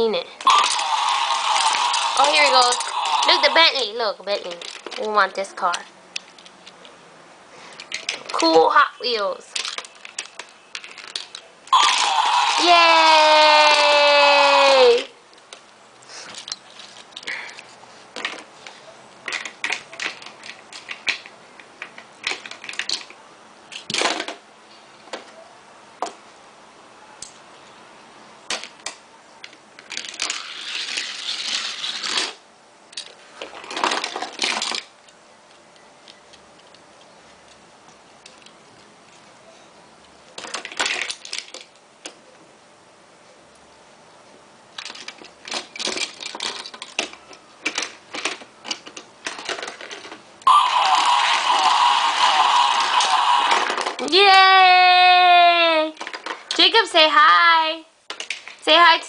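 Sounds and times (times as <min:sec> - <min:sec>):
toy cars clicking and clacking: 0:00.4 - 0:06.9, 0:07.7 - 0:08.8, 0:09.4 - 0:14.8, 0:16.3 - 0:18.5, 0:19.2 - 0:24.4, 0:28.5 - 0:34.9, 0:40.3 - 0:42.2, 0:44.8 - 0:54.3, 0:55.8 - 0:56.8, 0:58.1 - 0:58.9.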